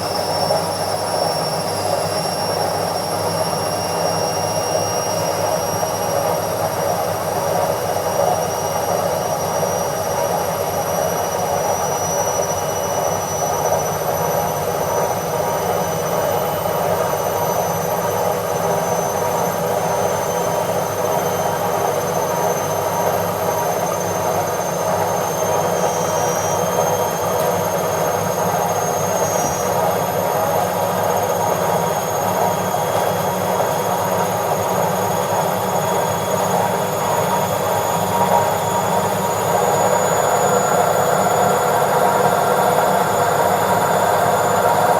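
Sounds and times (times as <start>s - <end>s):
washing machine spinning: 0.0s - 44.9s.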